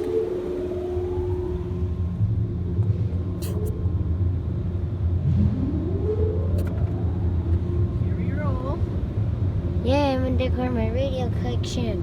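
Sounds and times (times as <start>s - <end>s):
rising whine: 0.0s - 8.5s
car wash machinery rumble: 0.0s - 12.0s.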